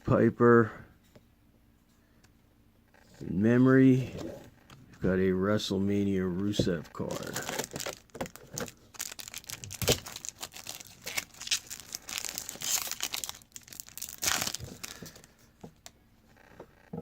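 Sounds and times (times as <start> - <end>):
card wrapper crinkling and tearing: 7.0 - 15.3.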